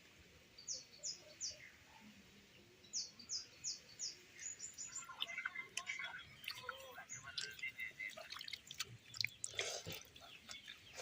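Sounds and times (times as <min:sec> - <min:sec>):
small bird chirping: 0:02.8 - 0:11.0.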